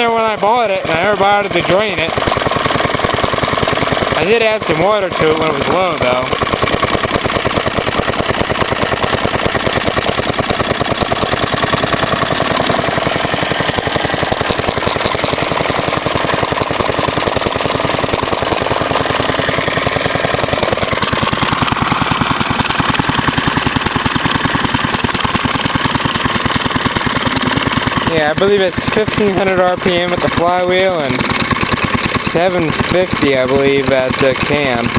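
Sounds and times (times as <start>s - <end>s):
single-cylinder engine running: 0.0s - 34.9s.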